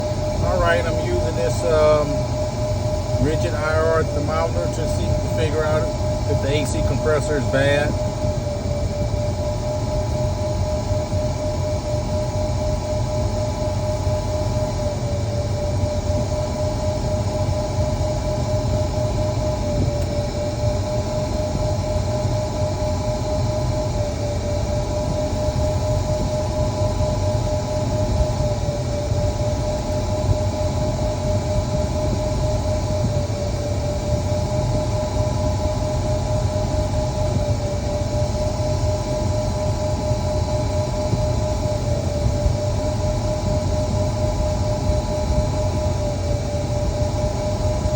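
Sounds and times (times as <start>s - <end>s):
constant whine: 0.0s - 47.9s
car engine rumbling: 0.3s - 2.4s.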